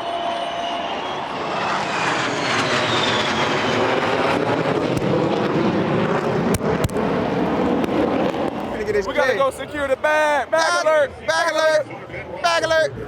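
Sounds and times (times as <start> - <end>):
high whine sliding down: 0.0 - 9.0
aircraft passing overhead: 0.0 - 10.6.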